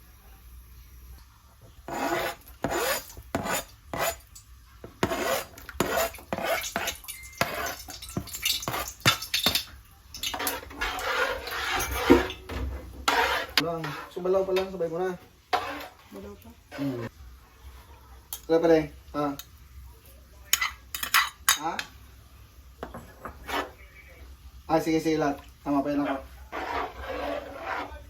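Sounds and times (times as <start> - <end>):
metal utensil scraping a pot: 1.9 - 4.2, 5.0 - 9.6, 10.2 - 14.9, 15.5 - 17.1, 26.0 - 28.0.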